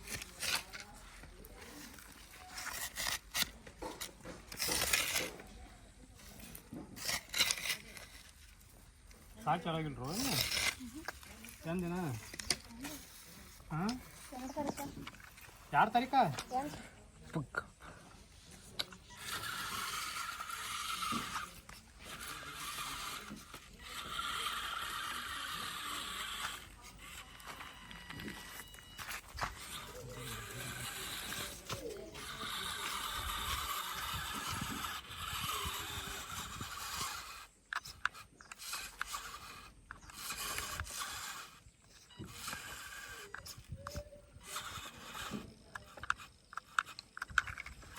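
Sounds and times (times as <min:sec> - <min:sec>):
toy motor and gears whirring: 0:00.0 - 0:47.9
sharp clicks: 0:30.6 - 0:47.9.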